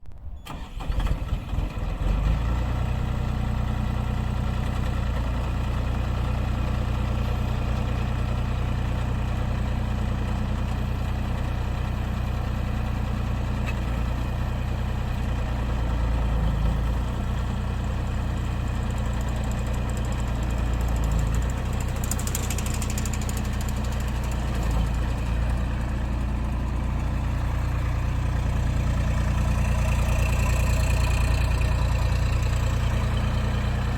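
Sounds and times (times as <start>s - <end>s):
excavator engine running: 11.8s - 33.9s.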